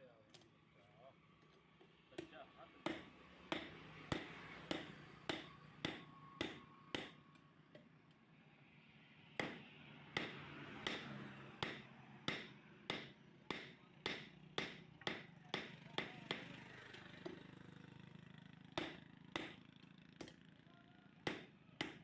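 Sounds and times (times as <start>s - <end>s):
hammer striking iron on anvil: 2.2s - 7.2s, 9.4s - 17.5s, 18.8s - 20.4s, 21.2s - 22.0s.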